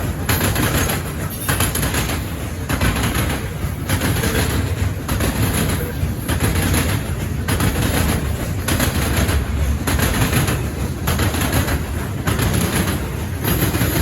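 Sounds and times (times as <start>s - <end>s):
low rumble of train: 0.0s - 14.0s
train wheels clattering on track: 0.0s - 14.0s.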